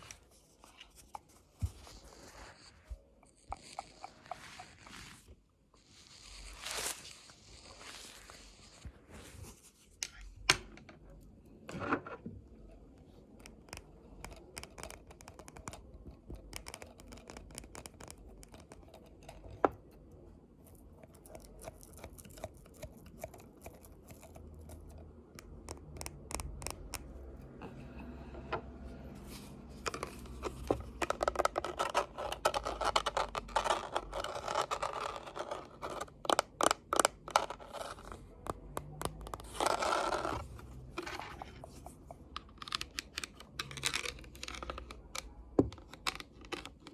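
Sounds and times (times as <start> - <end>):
scratching strokes: 0.0 - 10.0.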